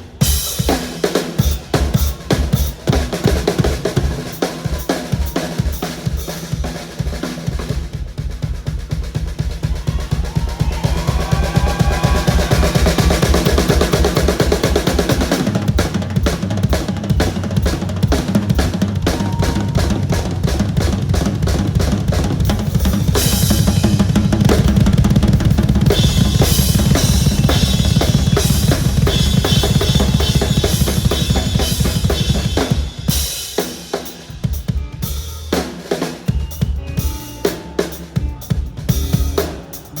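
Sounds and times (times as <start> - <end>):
bass drum and snare strokes: 5.2 - 40.0
cymbals crashing: 11.0 - 40.0.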